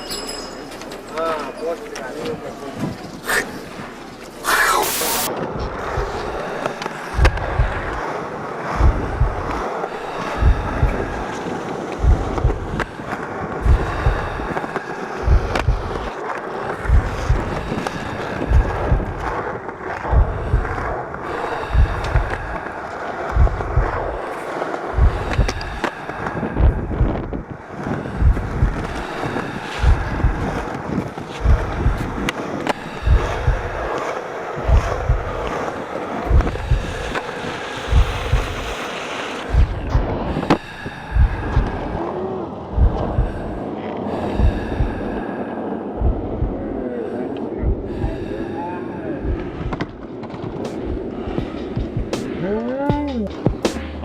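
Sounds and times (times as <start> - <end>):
skateboard wheels rolling on pavement: 0.1 - 54.0
instrumental hip-hop beat: 50.6 - 54.0.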